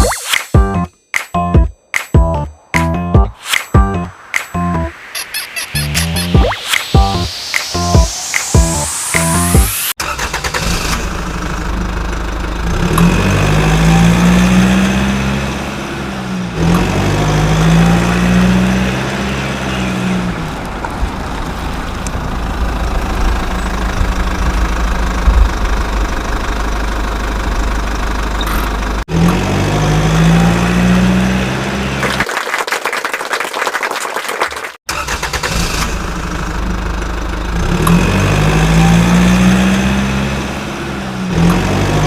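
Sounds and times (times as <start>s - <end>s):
vehicle engine revving: 7.2s - 32.2s, 35.0s - 42.0s.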